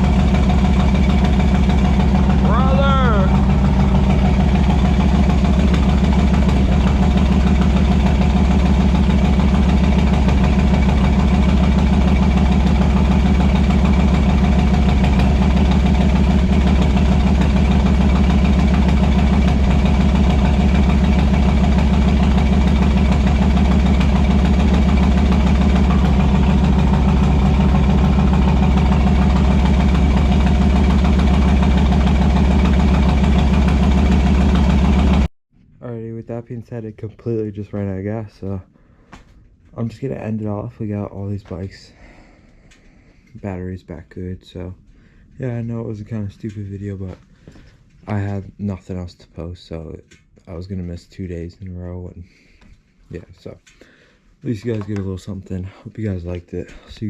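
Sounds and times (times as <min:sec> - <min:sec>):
motorcycle engine idling: 0:00.0 - 0:35.3.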